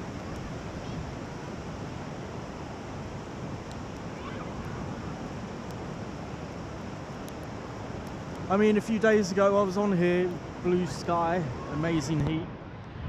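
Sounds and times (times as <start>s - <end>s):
surf breaking on beach: 0.0s - 7.2s.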